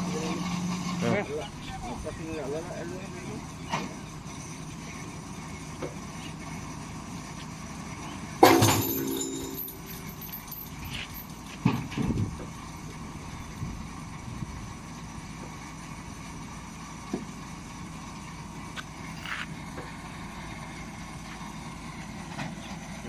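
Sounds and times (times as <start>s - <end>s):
engine running: 0.0s - 23.0s
knocks and clanks: 8.4s - 12.6s.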